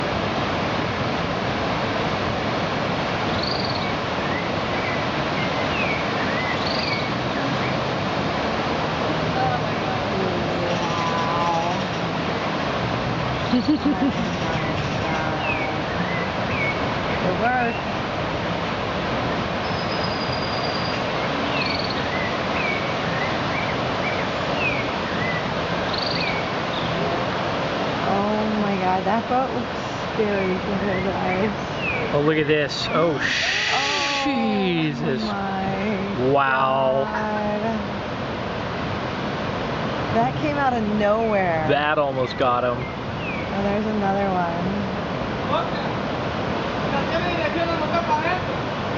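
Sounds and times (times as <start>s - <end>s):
ocean surf: 0.0s - 48.9s
wind: 0.0s - 48.9s
birds chirping: 3.2s - 8.0s, 9.4s - 12.1s, 13.3s - 18.0s, 19.3s - 28.9s, 30.0s - 36.2s, 40.5s - 44.5s
bird chirps: 3.3s - 7.8s, 19.6s - 27.0s.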